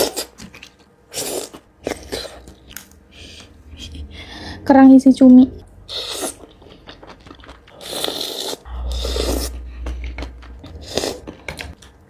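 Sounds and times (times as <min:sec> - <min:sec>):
wet chewing: 0:05.9 - 0:12.0.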